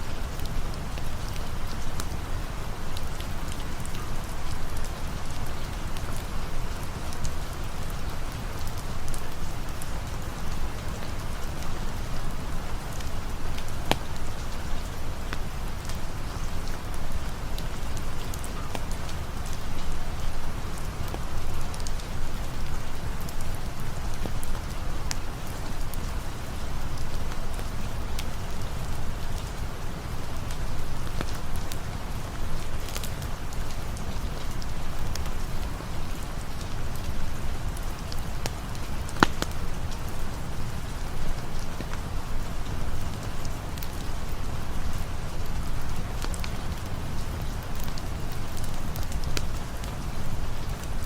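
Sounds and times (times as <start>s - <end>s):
rain falling: 0.0s - 51.0s
sharp ticks and pops: 38.1s - 40.0s.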